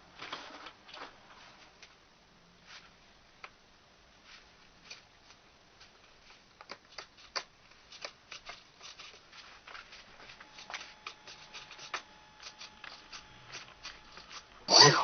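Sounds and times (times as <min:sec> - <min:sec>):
small objects clicking and tapping: 0:06.6 - 0:09.2.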